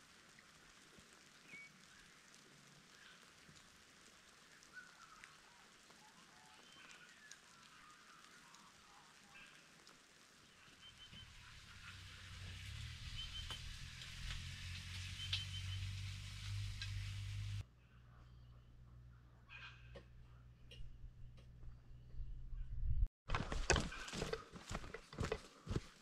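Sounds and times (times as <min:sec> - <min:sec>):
light rain: 0:00.0 - 0:17.7
short bird chirps: 0:13.0 - 0:13.7, 0:15.1 - 0:16.1.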